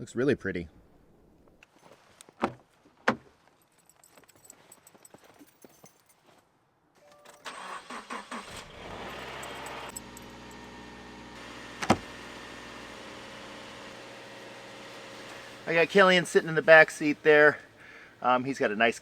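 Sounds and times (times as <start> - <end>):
car engine cranking: 7.4 - 13.2.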